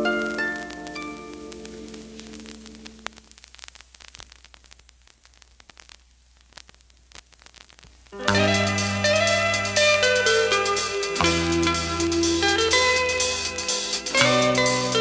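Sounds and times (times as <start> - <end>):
held song notes: 0.0 - 3.1, 8.2 - 15.0
vinyl surface crackle and clicks: 0.0 - 15.0.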